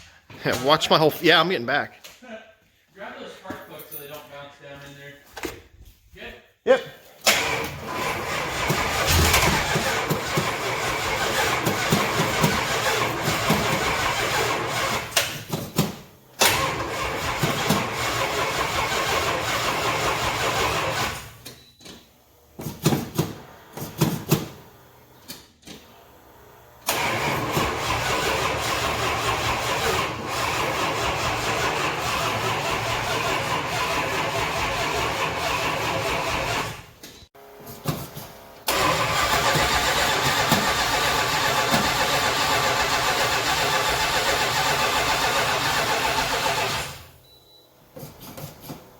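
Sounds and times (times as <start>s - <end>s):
engine cranking by starter: 7.2s - 21.5s, 26.8s - 37.1s, 38.6s - 47.2s.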